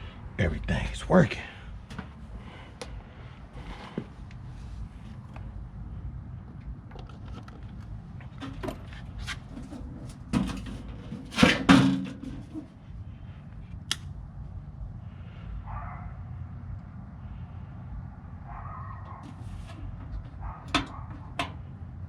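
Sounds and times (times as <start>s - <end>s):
hands clicking on battery connections: 13.8s - 14.1s.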